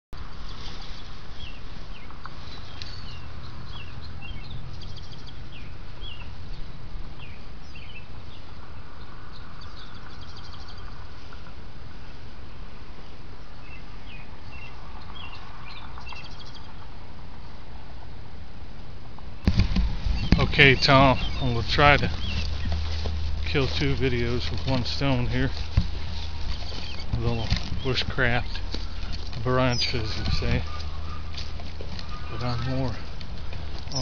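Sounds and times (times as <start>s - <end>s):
small birds chirping and trilling: 0.3s - 11.5s, 13.4s - 16.9s, 19.5s - 34.0s
steady low rumble: 19.5s - 34.0s.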